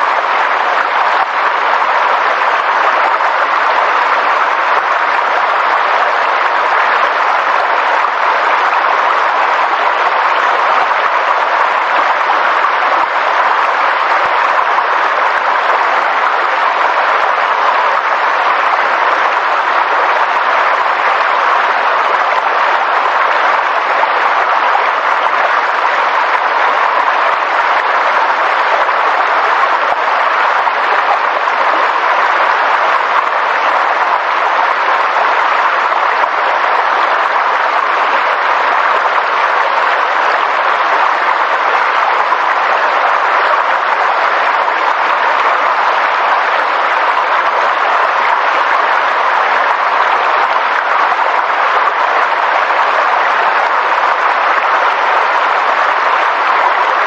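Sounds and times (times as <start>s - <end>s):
steady rushing nature noise: 0.0s - 57.0s.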